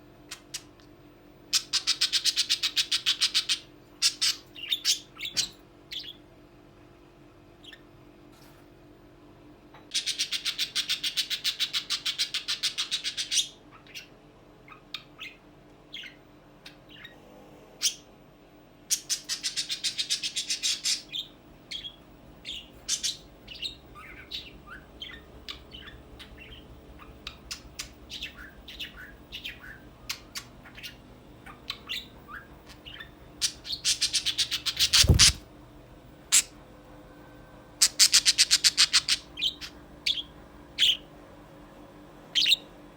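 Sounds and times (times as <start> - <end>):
budgerigar chirping and warbling: 1.5 - 6.2, 9.9 - 14.1, 14.7 - 17.1, 18.9 - 35.4, 37.8 - 41.0.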